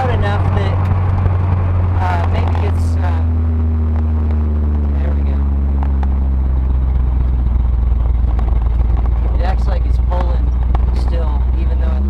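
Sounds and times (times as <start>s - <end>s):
car engine low drone: 0.0s - 12.0s.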